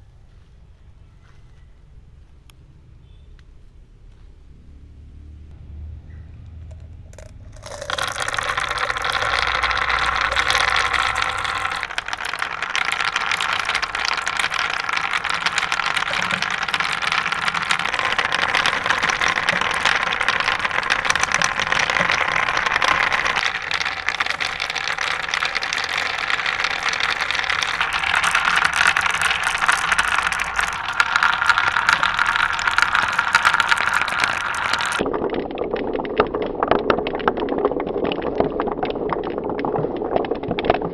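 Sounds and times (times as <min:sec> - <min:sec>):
marbles rattling down plastic track: 0:06.8 - 0:35.1.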